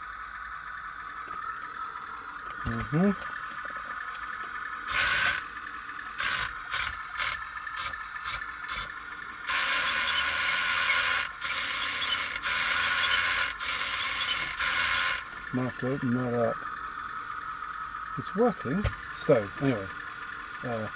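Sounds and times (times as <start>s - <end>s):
toy tank motors whirring: 0.9s - 20.9s
toy gearbox clicks: 4.9s - 5.5s, 6.2s - 8.9s, 9.5s - 15.3s.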